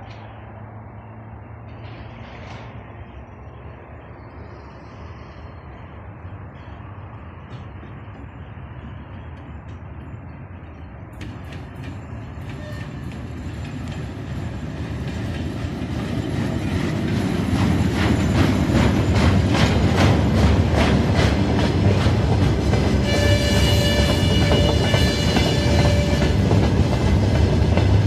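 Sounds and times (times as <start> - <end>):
diesel locomotive rumble: 0.0 - 28.0
wheels clicking over rail joints: 5.8 - 28.0.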